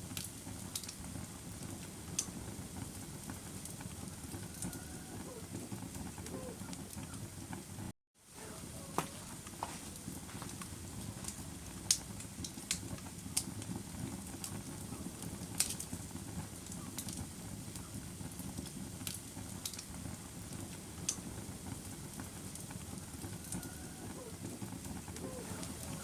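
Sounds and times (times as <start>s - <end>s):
wood fire crackling: 0.0s - 26.0s
sharp pops and snaps: 0.1s - 1.0s, 10.4s - 13.7s, 15.5s - 15.9s, 18.6s - 21.3s.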